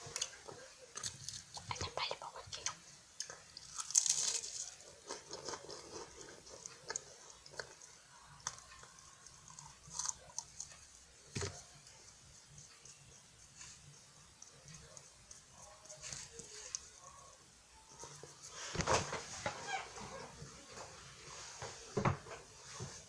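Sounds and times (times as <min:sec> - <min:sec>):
chewing crunchy pastry: 0:02.6 - 0:18.5.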